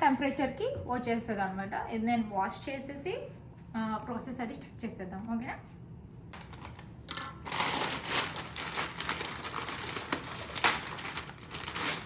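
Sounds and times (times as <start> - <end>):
frozen vegetables rattling: 6.4 - 12.0.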